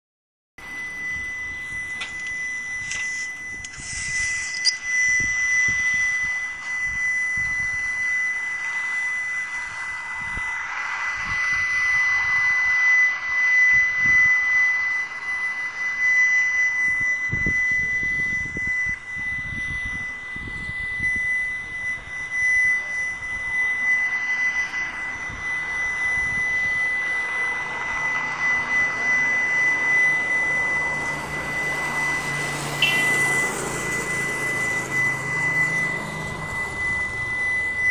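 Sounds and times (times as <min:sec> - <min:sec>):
humming drone with high whine: 0:00.6 - 0:37.9
wind rumbling on microphone: 0:01.0 - 0:08.3, 0:09.5 - 0:14.6, 0:16.7 - 0:23.6, 0:24.7 - 0:37.9.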